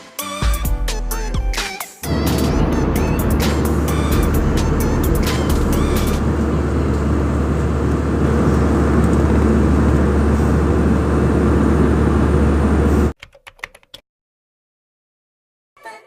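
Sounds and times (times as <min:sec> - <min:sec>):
airliner cabin roar: 0:02.0 - 0:13.1.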